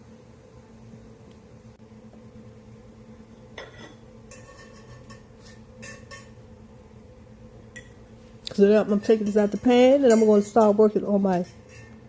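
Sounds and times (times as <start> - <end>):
utensil clinking against pan: 3.6 - 6.4, 8.8 - 12.0.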